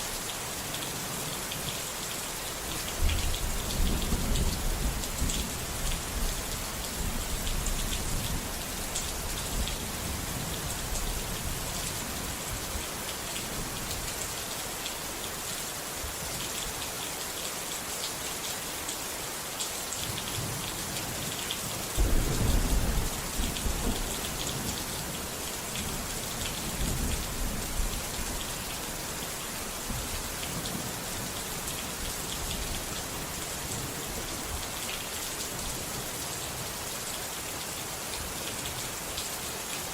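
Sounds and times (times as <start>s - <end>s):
steady rain falling: 0.0s - 39.9s
thunder rumbling: 22.0s - 24.4s.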